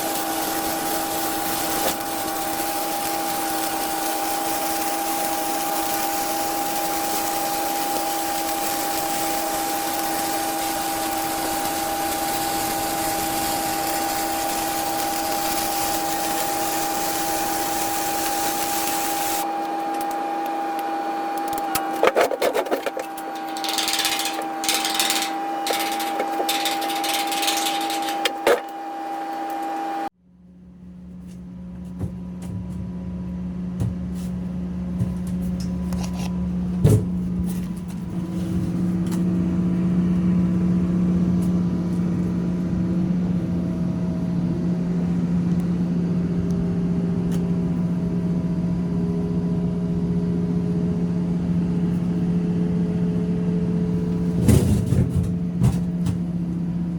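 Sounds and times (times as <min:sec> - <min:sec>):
crackling welding bursts: 0:00.0 - 0:20.2, 0:21.4 - 0:28.8
welding arc hiss: 0:00.0 - 0:20.2, 0:21.5 - 0:28.7
welding machine whine: 0:00.0 - 0:30.1, 0:34.2 - 0:54.5.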